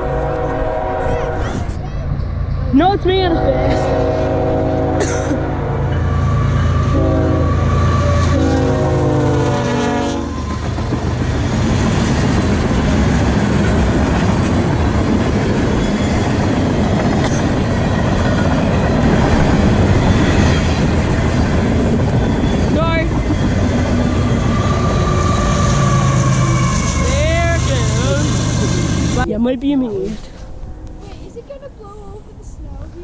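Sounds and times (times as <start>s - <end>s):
freight cars rumbling on rails: 0.0s - 33.0s
locomotive multi-chime horn: 3.2s - 10.4s
locomotive engine running: 10.2s - 29.4s.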